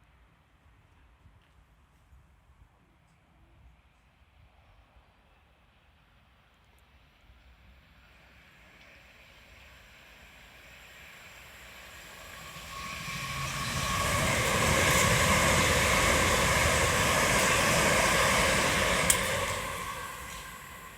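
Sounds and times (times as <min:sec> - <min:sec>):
train rumble and wheel noise: 0:06.9 - 0:20.9.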